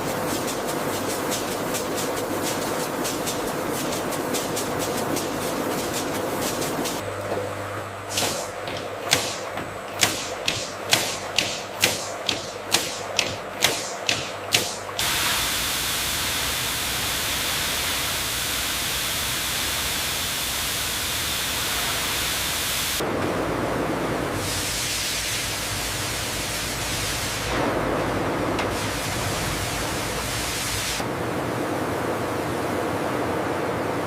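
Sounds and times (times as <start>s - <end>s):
spray-like hiss: 0.0s - 7.0s, 14.6s - 23.0s, 24.4s - 27.8s, 28.6s - 31.0s
machinery clicking evenly: 8.6s - 15.0s.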